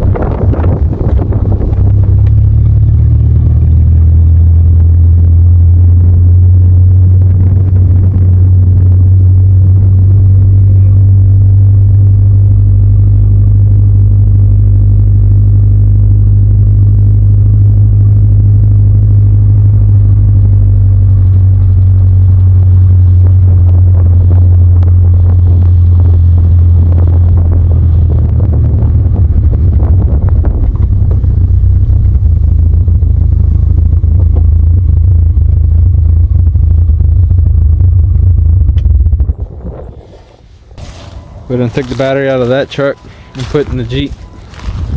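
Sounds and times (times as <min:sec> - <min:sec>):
engine rumbling with open exhaust: 0:00.0 - 0:44.9.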